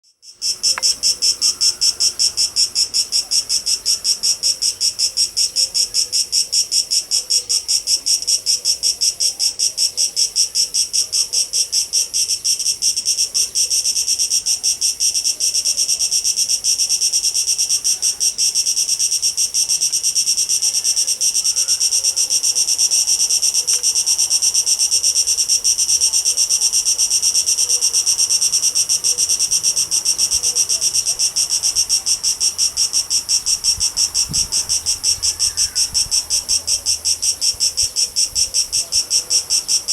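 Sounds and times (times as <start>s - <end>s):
cicadas buzzing: 0.1s - 39.9s.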